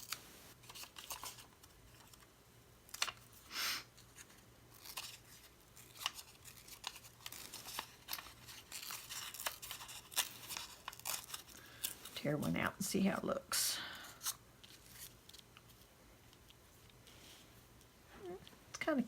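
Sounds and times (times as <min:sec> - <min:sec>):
paper rustling: 0:00.0 - 0:02.3.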